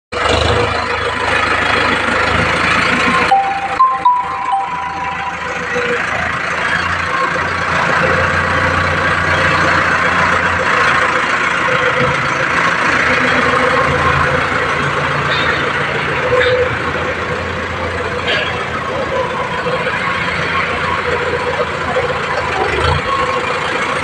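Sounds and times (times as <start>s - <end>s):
tractor diesel engine running: 0.2s - 24.0s.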